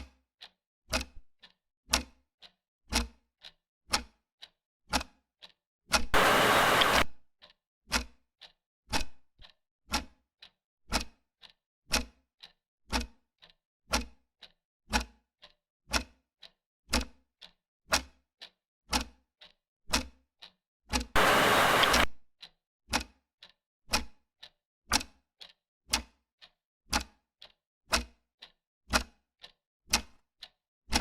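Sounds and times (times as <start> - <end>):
clock ticking: 0.4 - 31.0
loud hissing noise: 6.2 - 7.0, 21.2 - 22.1.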